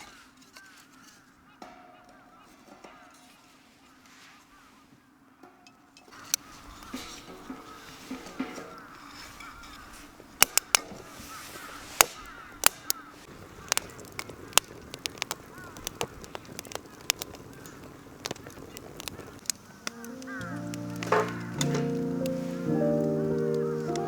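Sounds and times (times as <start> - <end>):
faint bird calls: 0.0 - 24.0
campfire crackling and popping: 6.0 - 24.0
music: 20.0 - 24.0.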